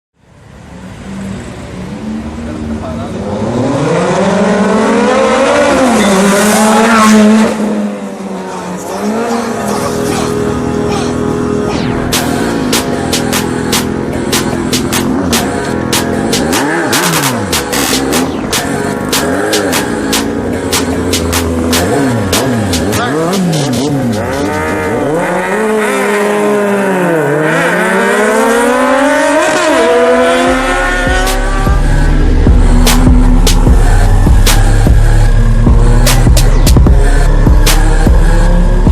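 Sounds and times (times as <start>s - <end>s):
motorcycle engine accelerating: 9.0s - 38.9s.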